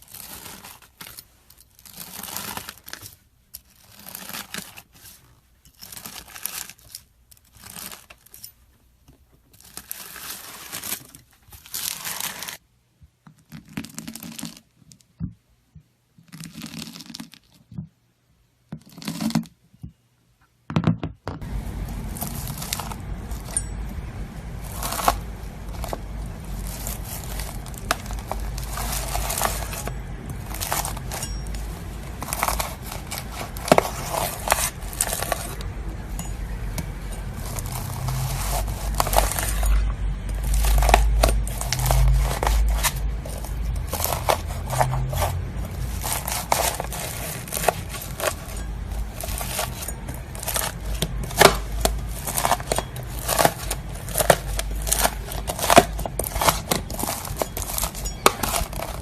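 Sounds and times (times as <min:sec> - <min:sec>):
knife crunching through slime: 0:00.0 - 0:08.5, 0:09.6 - 0:12.6, 0:13.4 - 0:14.7, 0:16.2 - 0:17.6, 0:18.8 - 0:19.5, 0:21.8 - 0:59.0
steady low hum: 0:21.4 - 0:59.0.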